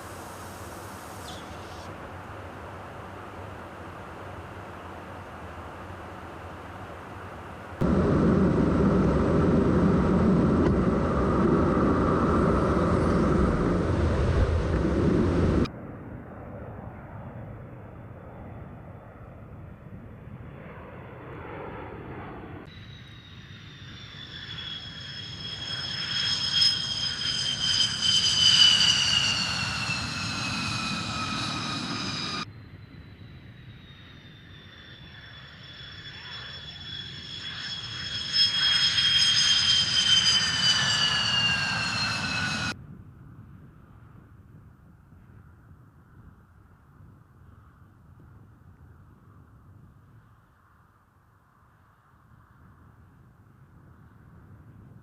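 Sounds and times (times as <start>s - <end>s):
jet engine roar: 0.0s - 42.8s
jet engine rushing sound: 7.8s - 15.7s, 20.6s - 42.8s
turbine whine falling in pitch: 7.8s - 15.8s, 21.4s - 42.8s.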